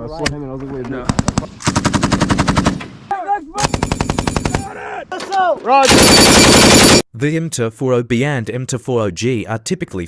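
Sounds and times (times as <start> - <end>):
people shouting: 3.1 - 3.8, 4.5 - 5.9
machine gun bursts: 3.6 - 4.6, 5.8 - 7.0.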